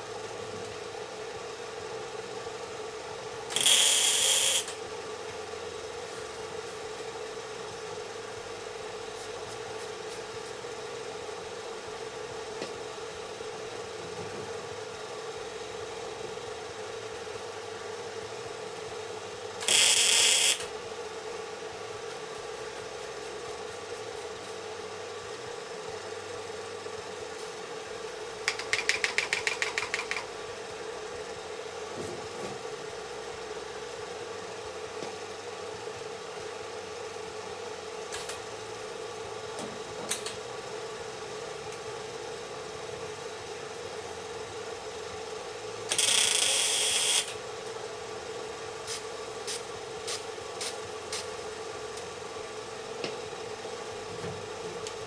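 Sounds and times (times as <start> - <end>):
power tool bursts: 3.5 - 4.8, 19.6 - 20.7, 45.9 - 47.4.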